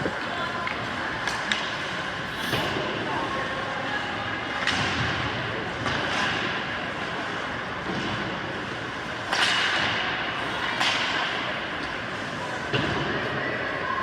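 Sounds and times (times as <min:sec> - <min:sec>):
hockey sticks cracking on puck: 0:09.3 - 0:10.0.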